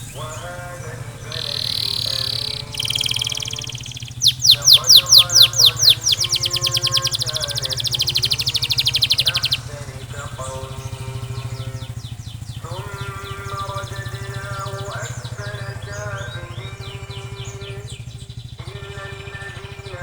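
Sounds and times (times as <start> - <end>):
canary singing trills: 0.0 - 20.0
steady low hum: 0.0 - 20.0
faint held tones: 0.9 - 15.8.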